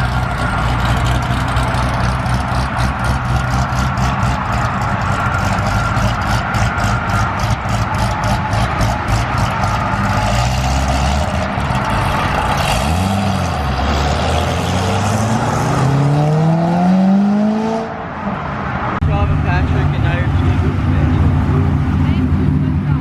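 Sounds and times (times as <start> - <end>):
car engine revving and accelerating: 0.0 - 23.0.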